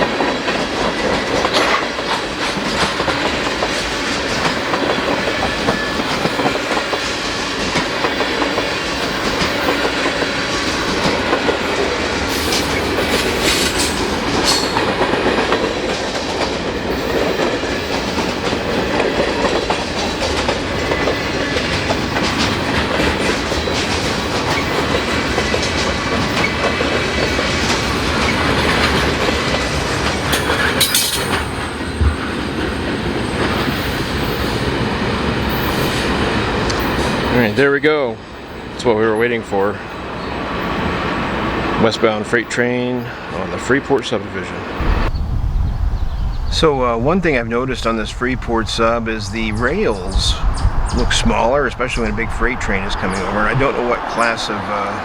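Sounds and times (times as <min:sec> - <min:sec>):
train wheel clicks and clacks: 0:00.0 - 0:37.8, 0:51.0 - 0:55.0
freight train rumbling past: 0:00.0 - 0:55.0.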